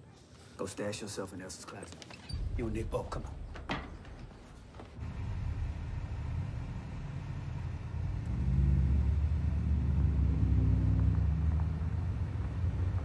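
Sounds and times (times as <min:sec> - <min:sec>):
car engine revving: 0:05.0 - 0:13.0.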